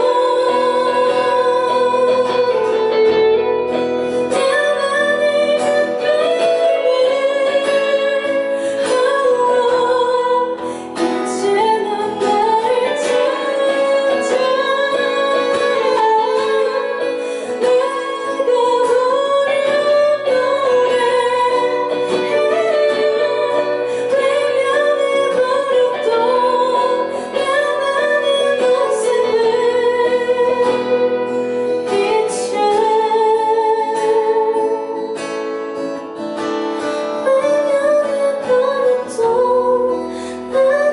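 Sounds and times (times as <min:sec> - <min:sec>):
guitar accompaniment: 0:00.0 - 0:40.9
woman singing: 0:00.0 - 0:40.9.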